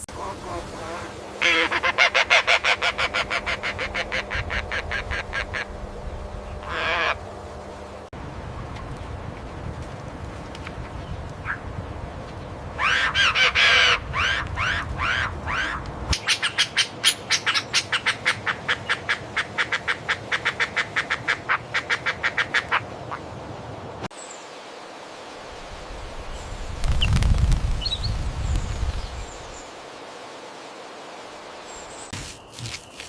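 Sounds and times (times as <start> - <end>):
sharp quack-like animal calls: 1.0 - 5.7, 6.6 - 7.2.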